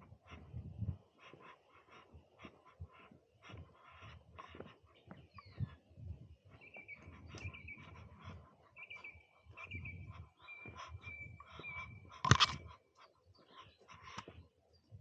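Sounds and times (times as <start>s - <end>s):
bird chirping: 3.8s - 15.0s.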